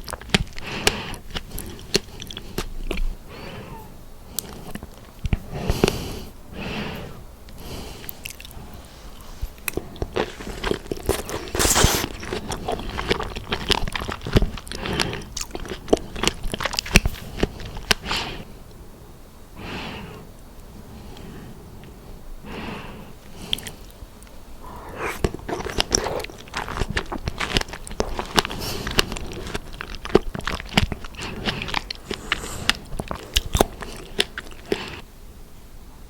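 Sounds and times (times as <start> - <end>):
chewing strawberries: 0.0 - 6.3, 7.5 - 18.7, 23.2 - 35.1
wet mouth clicks and smacking: 9.6 - 18.1, 24.7 - 35.0.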